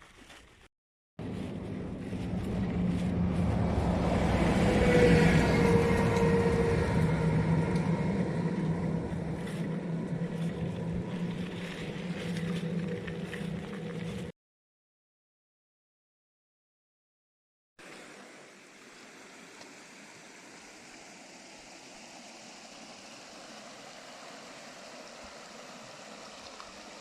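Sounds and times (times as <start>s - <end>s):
engine running: 1.2s - 14.3s.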